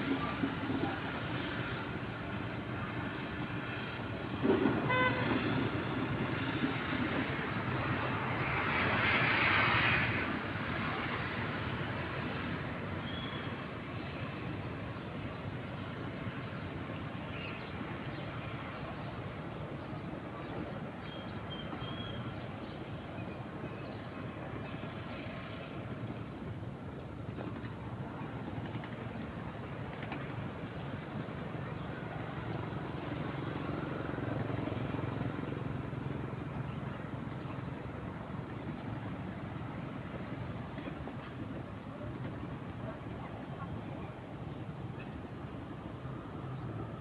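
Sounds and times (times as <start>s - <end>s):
short horn toot: 4.8s - 5.4s.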